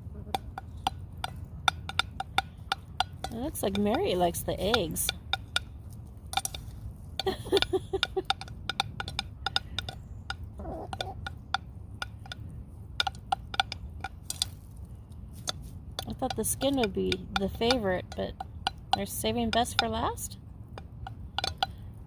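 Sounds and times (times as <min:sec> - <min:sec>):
beaks tapping on a plate: 0:00.2 - 0:22.0
hens clucking: 0:06.6 - 0:12.1.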